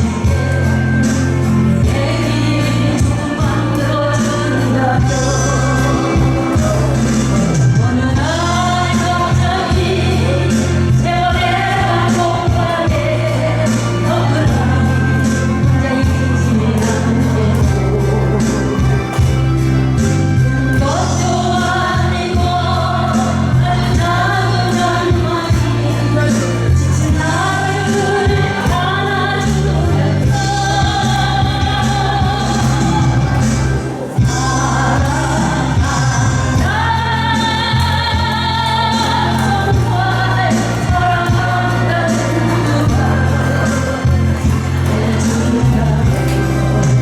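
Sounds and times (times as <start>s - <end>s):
backing music with steady beat: 0.0s - 47.0s
instrumental accompaniment with bass: 0.0s - 47.0s
person singing: 0.0s - 47.0s.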